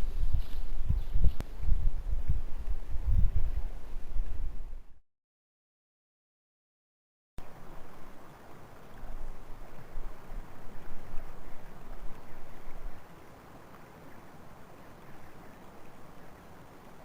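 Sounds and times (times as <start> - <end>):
wind buffeting microphone: 0.0 - 5.0.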